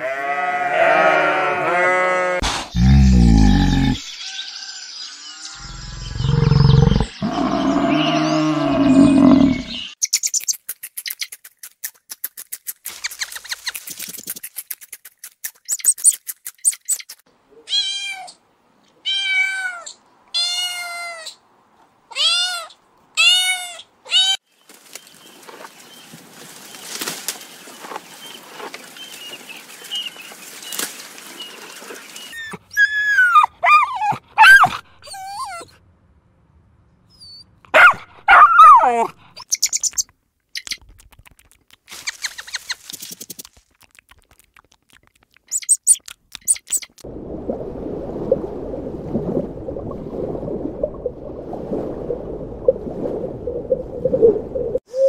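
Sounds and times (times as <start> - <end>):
fast clicking sounds: 10.2 - 17.2, 39.6 - 47.0.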